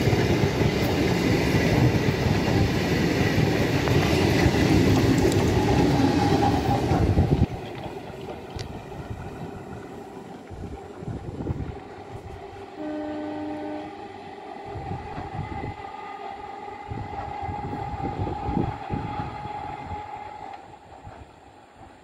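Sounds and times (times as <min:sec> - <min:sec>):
train rumbling on track: 0:00.0 - 0:22.0
train horn: 0:12.2 - 0:17.8, 0:18.5 - 0:20.7.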